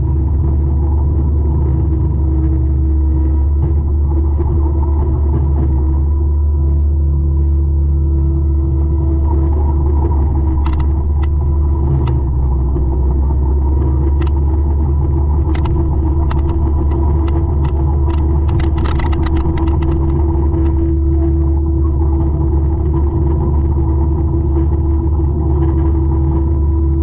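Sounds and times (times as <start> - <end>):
sharp cracks and ticks: 10.5 - 11.4, 14.1 - 14.4, 15.4 - 20.9.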